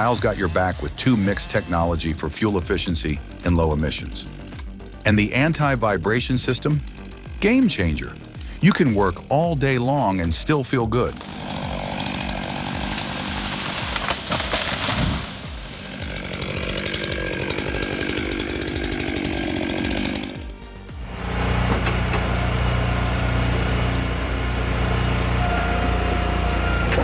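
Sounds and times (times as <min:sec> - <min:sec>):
chainsaw cutting wood: 0:00.0 - 0:27.0
loud low engine drone: 0:14.8 - 0:27.0.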